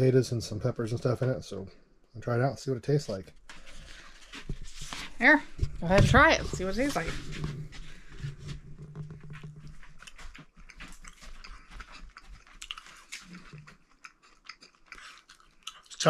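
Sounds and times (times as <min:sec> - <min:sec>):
person chewing meat: 0:09.2 - 0:16.0.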